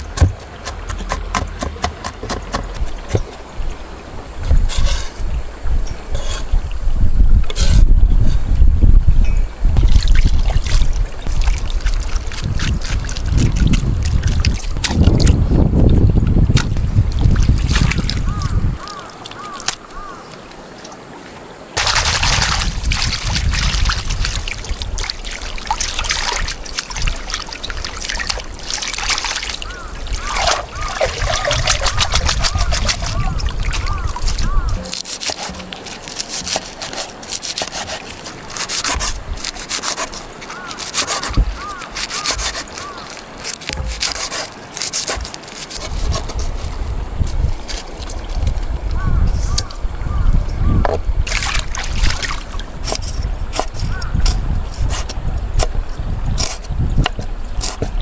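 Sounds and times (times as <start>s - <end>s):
stream water rushing: 0.0s - 58.0s
scraping on wood: 4.5s - 5.2s, 6.1s - 6.6s, 29.3s - 48.5s, 56.4s - 58.0s.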